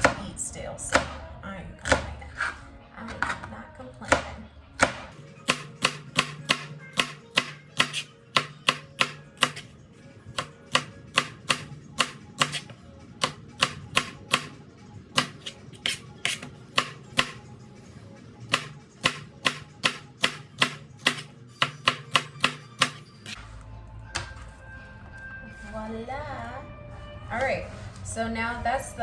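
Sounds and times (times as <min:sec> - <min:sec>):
knife chopping on cutting board: 0:04.8 - 0:09.7, 0:10.4 - 0:14.6, 0:15.2 - 0:17.5, 0:18.5 - 0:23.4.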